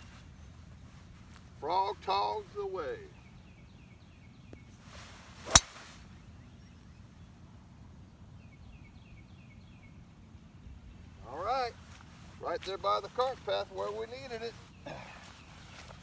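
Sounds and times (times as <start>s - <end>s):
golf club swishing: 5.4s - 5.8s
golf club striking ball: 5.5s - 5.8s.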